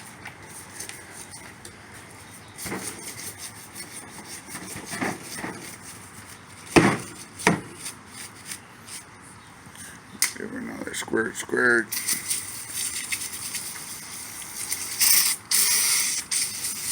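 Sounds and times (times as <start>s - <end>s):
scraping and rubbing on pump: 0.0s - 9.4s, 12.0s - 16.9s
sharp knocks: 6.7s - 7.8s.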